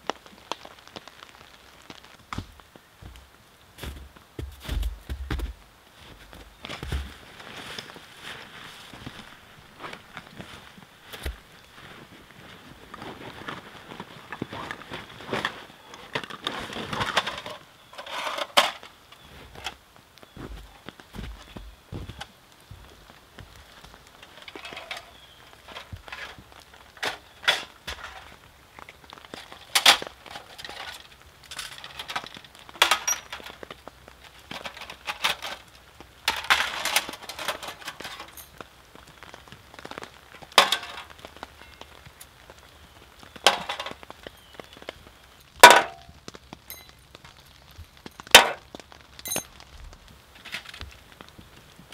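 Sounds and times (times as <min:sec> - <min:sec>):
metal plates clinking: 0:24.3 - 0:26.4, 0:40.6 - 0:41.1, 0:43.4 - 0:44.0, 0:45.6 - 0:46.0, 0:48.4 - 0:48.6, 0:49.3 - 0:49.5.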